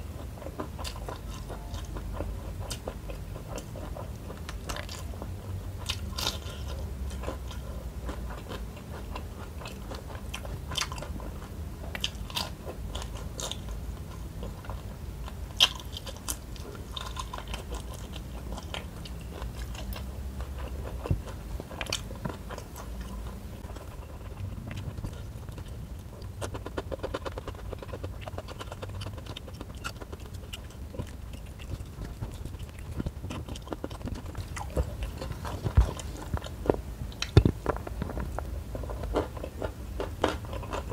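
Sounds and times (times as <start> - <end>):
wet chewing mouth sounds: 0.0 - 40.9.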